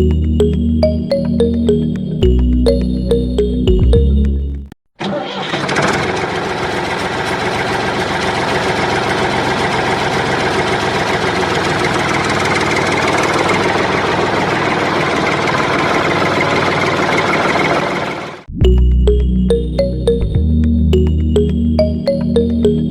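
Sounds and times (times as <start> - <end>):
tractor engine idling: 5.2 - 18.4.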